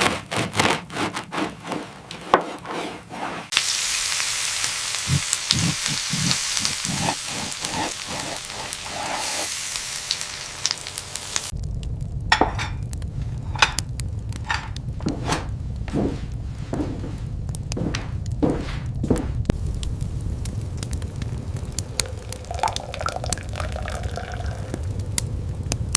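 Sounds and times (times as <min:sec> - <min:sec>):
food sizzling in a pan: 0:03.5 - 0:11.6, 0:19.6 - 0:25.0
stirring knocks: 0:05.1 - 0:08.4
low rumble: 0:10.8 - 0:25.9.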